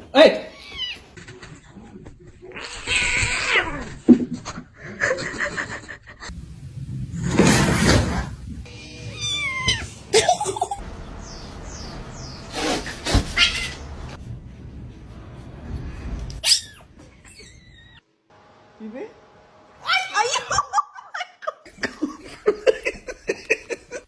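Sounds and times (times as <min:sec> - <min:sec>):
cats meowing: 0:00.5 - 0:01.2, 0:02.4 - 0:04.0, 0:08.7 - 0:10.2, 0:13.1 - 0:14.2.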